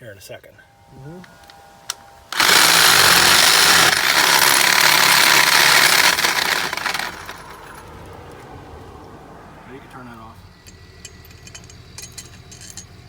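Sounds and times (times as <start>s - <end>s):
power tool cutting under load: 0.7s - 8.0s.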